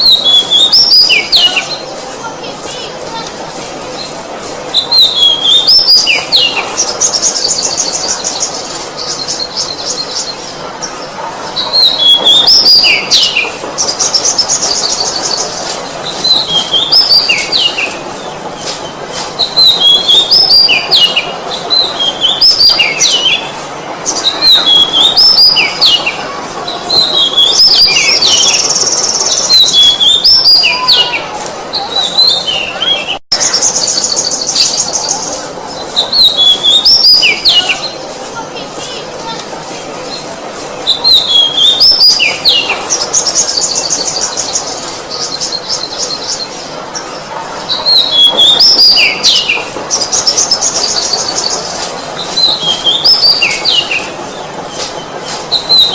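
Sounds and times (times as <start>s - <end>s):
bird singing whistles and trills: 0.0s - 1.8s, 4.7s - 10.4s, 19.4s - 23.5s, 24.2s - 26.2s, 36.0s - 38.0s, 40.9s - 46.6s, 47.7s - 51.6s, 52.2s - 54.1s, 55.5s - 55.9s.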